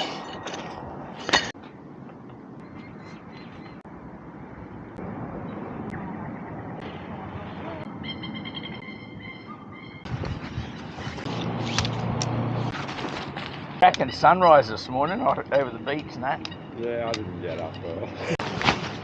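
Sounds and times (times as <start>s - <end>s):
rushing outdoor background: 0.0s - 19.0s
bird calling in quick notes: 7.8s - 10.1s.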